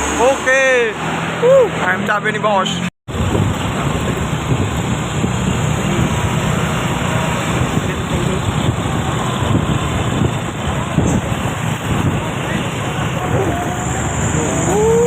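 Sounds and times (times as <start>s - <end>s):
low engine rumble: 3.1s - 15.0s
tyre and wind noise: 3.1s - 15.0s.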